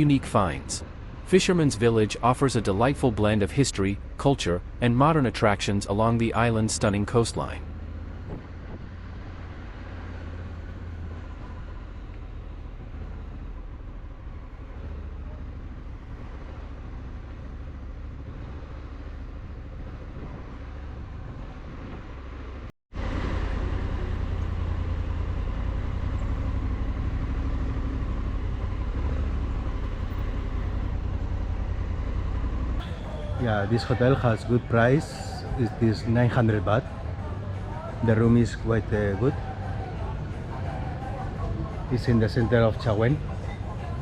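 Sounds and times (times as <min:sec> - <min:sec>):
motorcycle engine rumble: 0:00.0 - 0:44.0.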